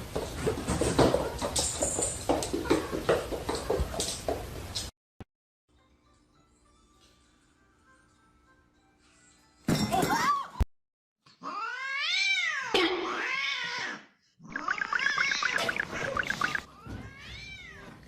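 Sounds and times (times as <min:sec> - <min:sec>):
cats meowing and yowling: 0:11.4 - 0:14.0.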